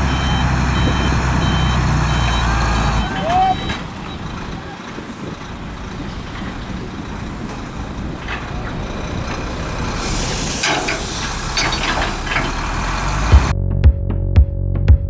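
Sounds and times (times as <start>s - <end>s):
diesel machinery rumbling: 0.0s - 13.6s
hissing bursts: 3.8s - 13.5s.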